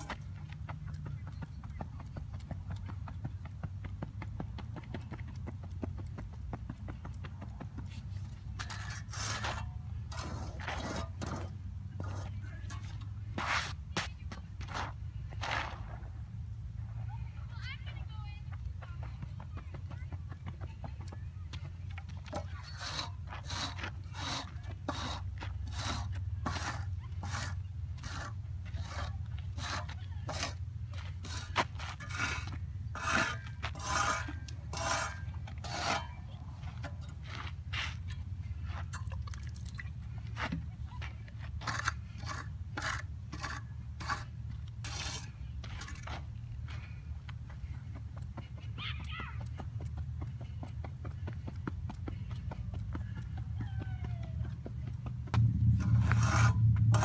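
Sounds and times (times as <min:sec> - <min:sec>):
scraping across clay: 0:06.8 - 0:16.1, 0:22.1 - 0:39.1, 0:40.2 - 0:47.0, 0:54.8 - 0:57.0.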